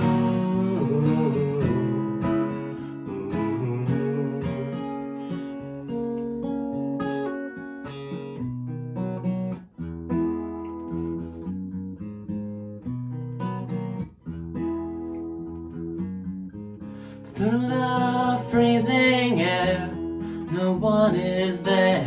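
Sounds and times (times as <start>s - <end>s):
person singing: 0.0s - 5.4s, 17.2s - 22.0s
acoustic guitar strumming: 0.0s - 22.0s.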